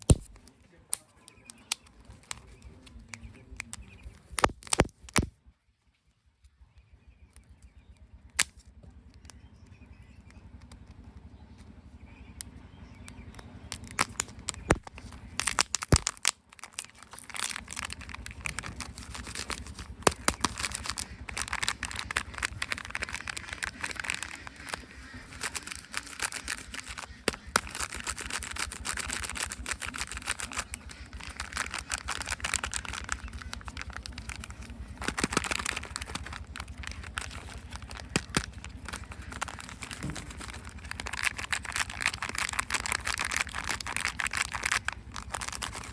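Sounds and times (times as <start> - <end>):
plastic clicks and snaps: 0.0 - 5.3, 7.3 - 11.7, 12.4 - 45.9
wrappers crinkling and rustling: 13.8 - 45.9.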